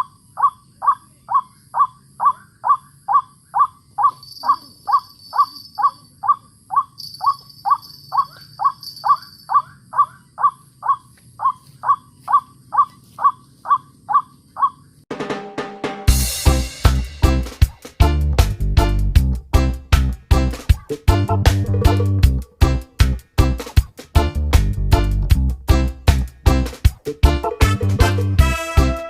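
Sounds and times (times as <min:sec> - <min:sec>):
waterhen harsh calls: 0:00.0 - 0:14.9
music: 0:15.1 - 0:29.0.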